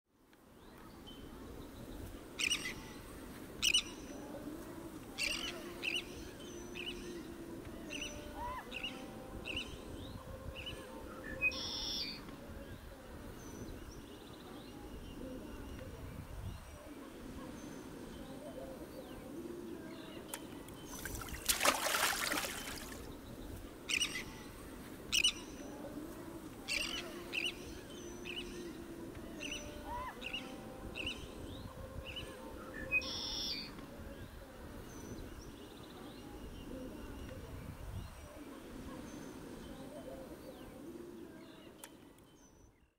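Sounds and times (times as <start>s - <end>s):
low ambient hum: 18.2s - 23.1s.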